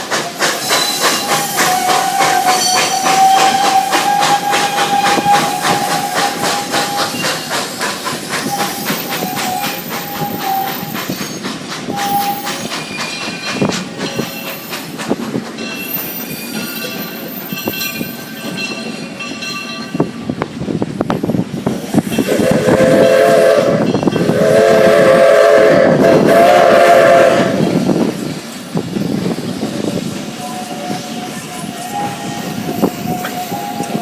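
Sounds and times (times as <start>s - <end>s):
steam locomotive rattling on rails: 0.0s - 34.0s
steam whistle blasts: 0.5s - 7.4s, 8.5s - 11.0s, 11.9s - 12.7s, 22.2s - 27.9s, 30.4s - 34.0s.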